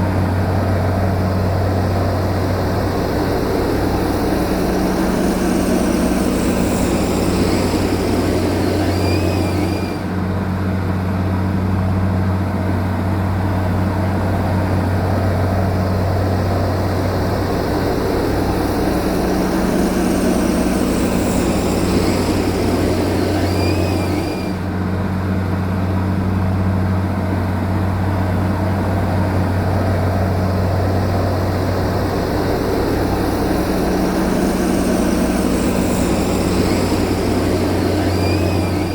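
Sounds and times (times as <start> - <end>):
diesel machinery engine droning: 0.0 - 38.9.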